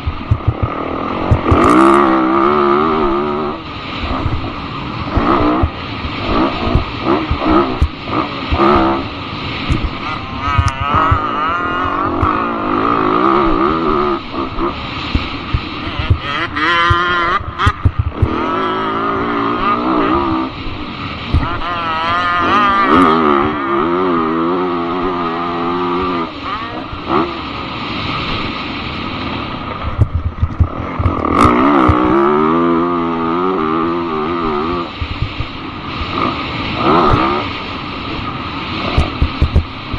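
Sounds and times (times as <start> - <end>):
sharp knocks and thumps: 0.0 - 1.7, 5.1 - 8.9, 9.6 - 10.0, 10.6 - 12.3, 16.9 - 18.4, 29.9 - 32.1, 35.0 - 35.6, 38.9 - 39.7
dirt bike engine revving: 0.0 - 28.2, 29.8 - 39.9.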